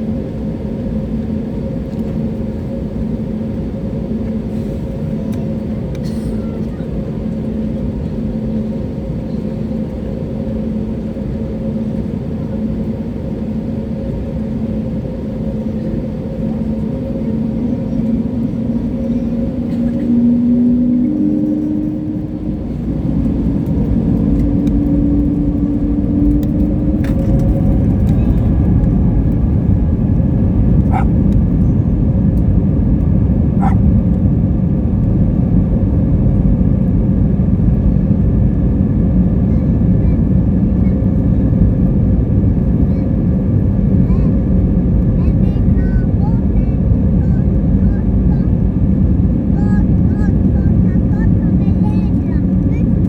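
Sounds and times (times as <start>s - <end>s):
aircraft engine hum: 0.0s - 53.0s
takeoff roll rumble: 12.8s - 53.0s.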